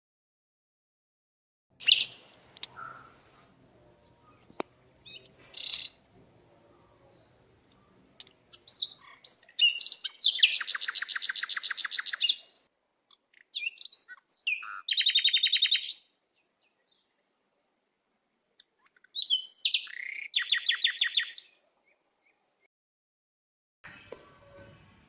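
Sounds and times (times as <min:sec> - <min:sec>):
bird singing chirps and trills: 0:01.8 - 0:17.4, 0:18.6 - 0:22.7.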